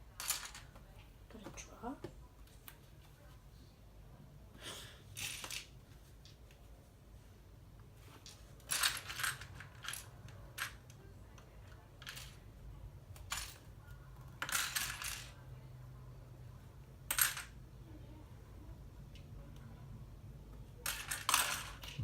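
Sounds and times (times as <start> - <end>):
plastic toy bricks clattering: 0.2 - 0.7, 5.2 - 5.7, 8.2 - 11.0, 14.3 - 15.4, 17.1 - 17.6, 20.8 - 22.0.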